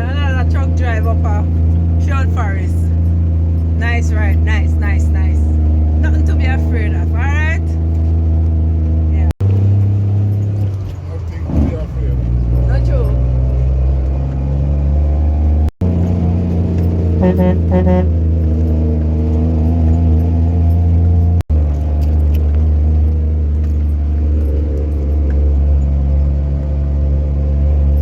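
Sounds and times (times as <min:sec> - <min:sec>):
truck engine droning: 0:00.0 - 0:28.0.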